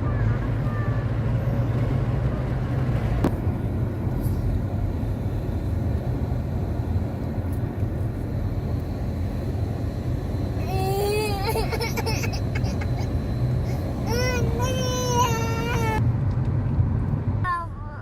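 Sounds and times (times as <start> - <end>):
car driving rumble: 0.0 - 18.0.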